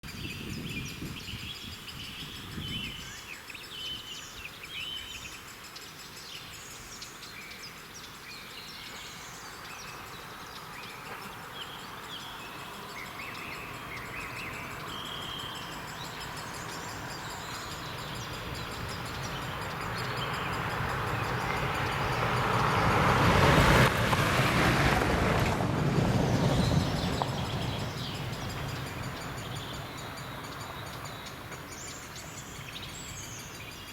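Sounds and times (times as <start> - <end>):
birds singing: 0.0 - 23.9, 26.1 - 33.9
train wheels on rails: 15.6 - 32.3
diesel train engine rumble: 15.8 - 32.3.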